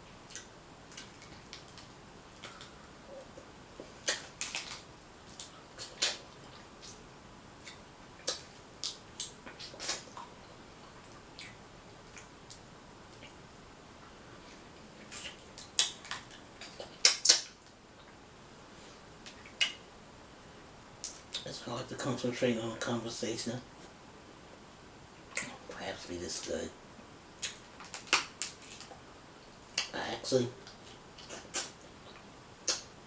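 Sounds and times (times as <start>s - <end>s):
crab shells cracking: 4.1s - 4.8s, 27.8s - 28.9s.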